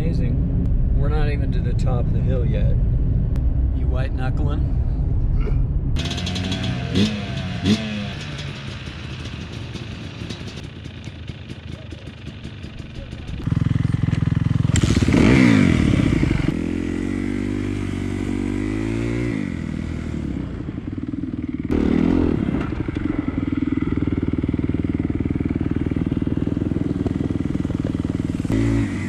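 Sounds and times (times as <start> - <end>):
dirt bike engine revving: 6.0 - 11.3, 12.4 - 29.0.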